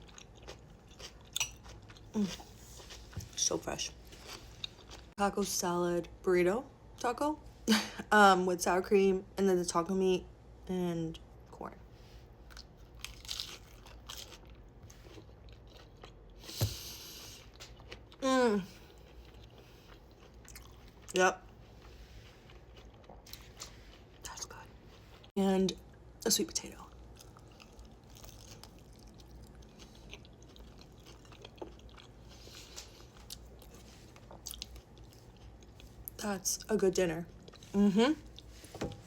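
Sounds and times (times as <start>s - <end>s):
person chewing food: 0.0s - 3.4s, 4.0s - 5.2s, 12.4s - 25.3s, 26.9s - 36.2s
person biting and chewing crunchily: 12.6s - 16.6s.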